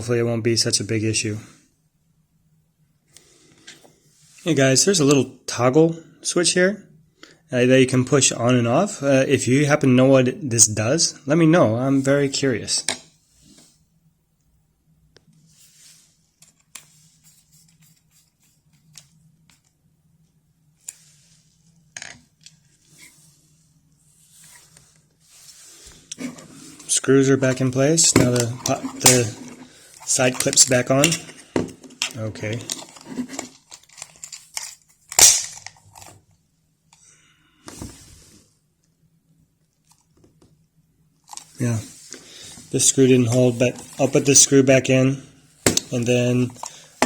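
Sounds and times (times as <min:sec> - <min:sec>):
plastic parts clicking and scraping: 0:26.0 - 0:36.2
loud plastic snap: 0:35.1 - 0:35.6.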